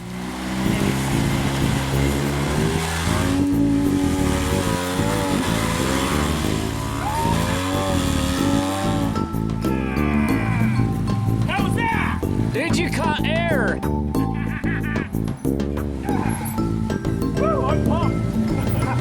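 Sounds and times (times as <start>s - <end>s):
engine revving hard: 0.0s - 9.6s.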